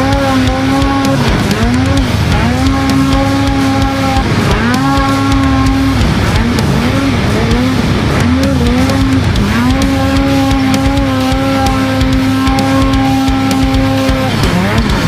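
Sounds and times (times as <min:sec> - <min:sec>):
snowmobile engine at high revs: 0:00.0 - 0:15.0.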